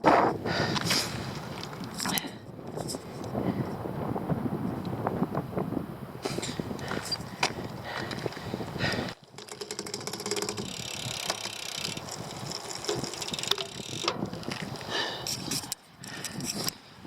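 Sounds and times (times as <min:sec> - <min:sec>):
bicycle tyre noise: 0:00.0 - 0:17.0
wind rushing on microphone: 0:00.0 - 0:17.0
quick run of ticks: 0:06.2 - 0:16.8
scattered clicks: 0:09.2 - 0:16.8.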